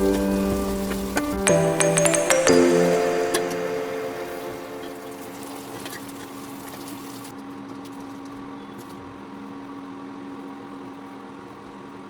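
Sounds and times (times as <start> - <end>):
faint hiss: 0.0 - 7.0.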